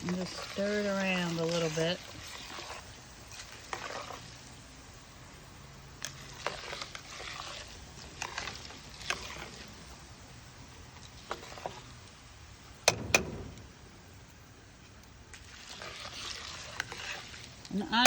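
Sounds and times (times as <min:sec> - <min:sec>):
spoon scraping in pot: 0:00.0 - 0:04.6, 0:06.0 - 0:09.9, 0:11.0 - 0:12.0, 0:15.4 - 0:18.0
sharp knocks: 0:12.8 - 0:13.8.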